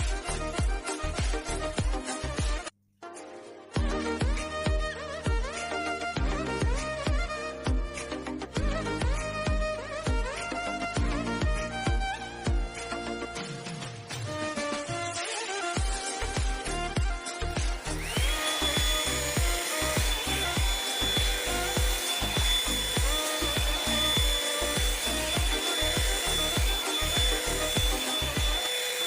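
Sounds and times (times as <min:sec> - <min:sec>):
background music with beat: 0:00.0 - 0:29.0
hair dryer brush motor whine: 0:15.1 - 0:29.0.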